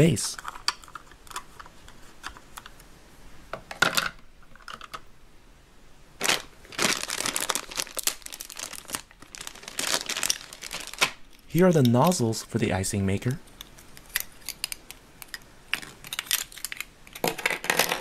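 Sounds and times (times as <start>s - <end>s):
plastic bag crinkling: 6.2s - 12.1s
plastic toy parts clicking: 13.5s - 18.0s.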